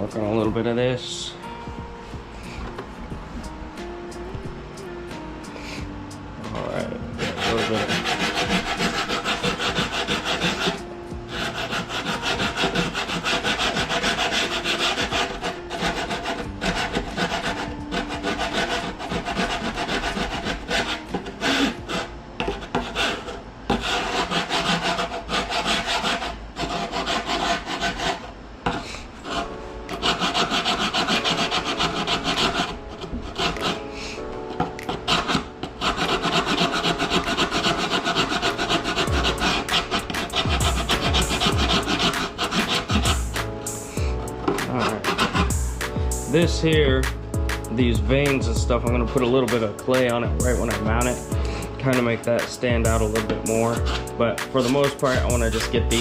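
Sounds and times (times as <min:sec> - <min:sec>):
hand file rasping on foam: 0:07.2 - 0:33.9, 0:34.8 - 0:46.8, 0:49.5 - 0:52.1, 0:52.7 - 0:56.0.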